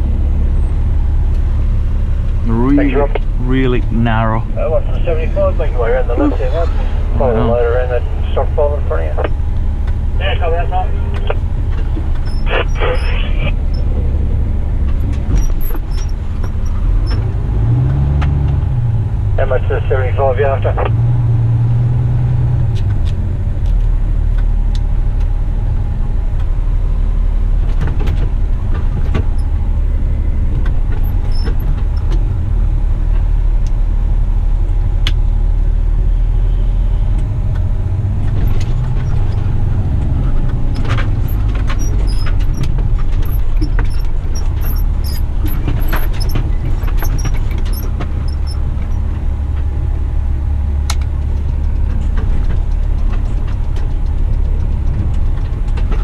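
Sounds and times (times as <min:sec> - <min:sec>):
truck diesel engine drone: 0:00.0 - 0:56.0
rattles and clicks: 0:11.1 - 0:18.6, 0:27.6 - 0:32.5, 0:37.2 - 0:56.0.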